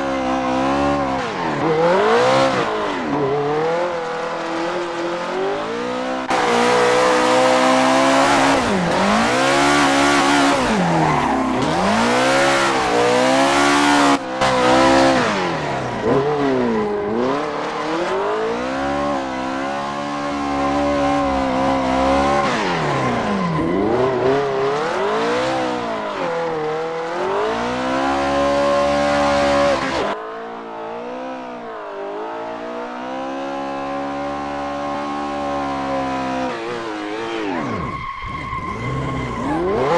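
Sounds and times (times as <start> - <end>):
car engine revving: 0.0 - 39.9
tyres squealing and skidding: 0.0 - 39.9.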